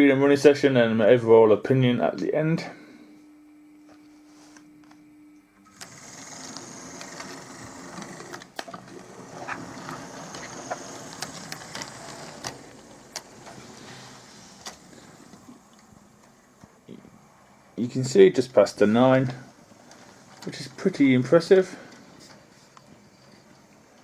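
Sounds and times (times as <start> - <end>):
model train motor whirring: 5.7 - 16.0
wheels clicking on rails: 5.8 - 16.4.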